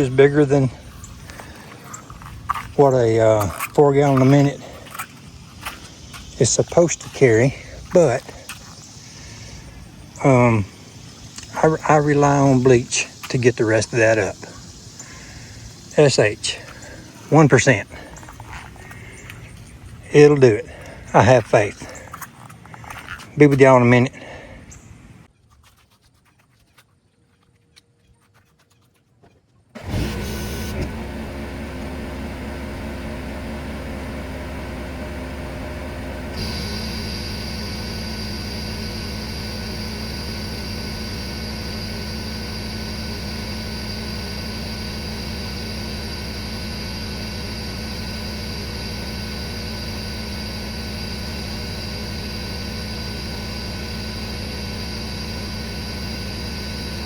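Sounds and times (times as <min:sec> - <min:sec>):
pressure washer engine: 0:00.0 - 0:24.6, 0:29.8 - 0:57.0
water spraying under pressure: 0:36.3 - 0:53.1.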